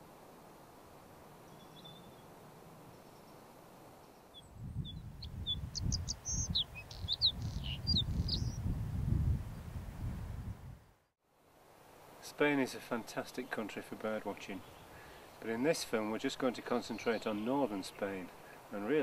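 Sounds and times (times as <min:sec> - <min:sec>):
small bird singing: 0:01.4 - 0:02.3, 0:04.0 - 0:08.7, 0:14.4 - 0:15.6, 0:16.5 - 0:18.3.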